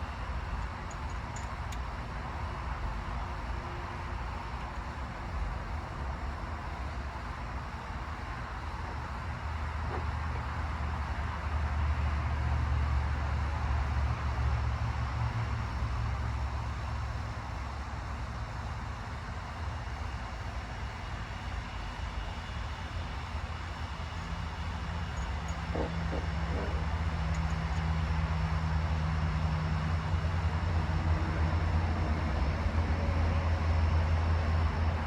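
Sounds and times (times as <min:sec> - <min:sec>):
engine rumbling: 0:23.2 - 0:35.0.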